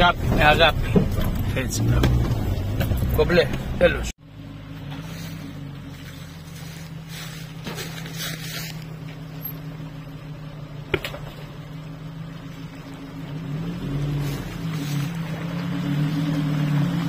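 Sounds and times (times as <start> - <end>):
engine running at low revs: 0.0 - 17.0.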